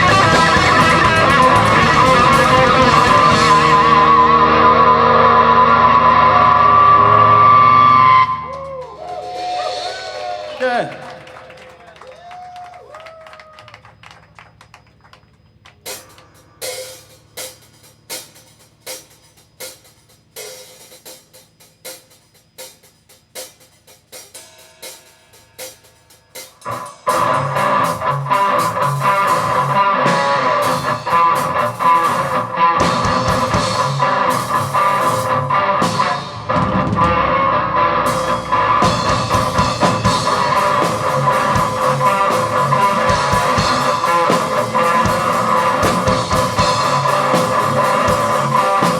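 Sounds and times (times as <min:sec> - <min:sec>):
rock band playing live: 0:00.0 - 0:08.4, 0:09.1 - 0:11.3, 0:26.6 - 0:48.9.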